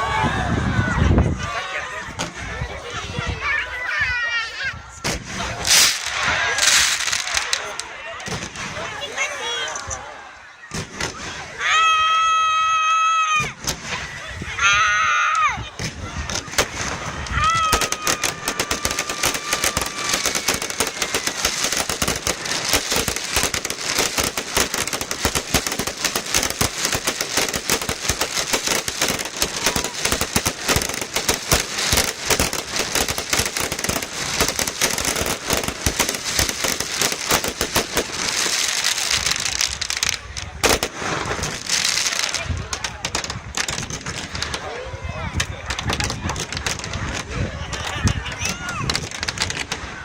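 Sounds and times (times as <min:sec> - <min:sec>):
fireworks bangs and crackling: 0:02.1 - 0:10.0, 0:10.6 - 0:50.0
firework falling whistle: 0:16.5 - 0:40.1.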